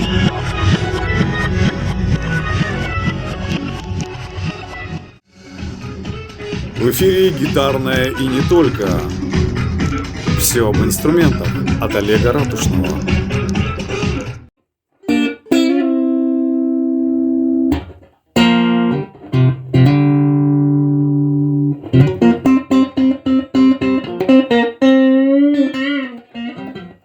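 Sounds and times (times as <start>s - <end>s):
electric guitar playing: 6.0s - 27.0s.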